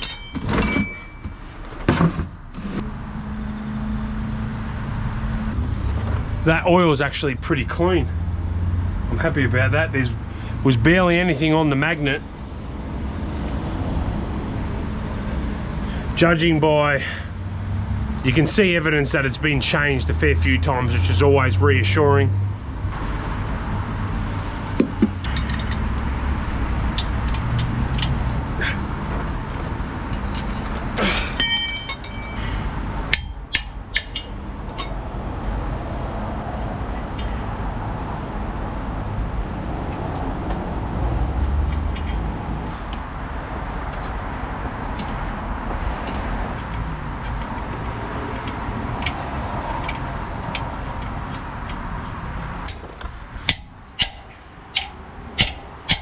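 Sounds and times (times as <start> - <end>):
metal tools clinking: 0.0 - 1.6, 25.2 - 26.2, 28.7 - 33.4
ringing metallic scrape: 0.0 - 1.7, 31.3 - 32.7.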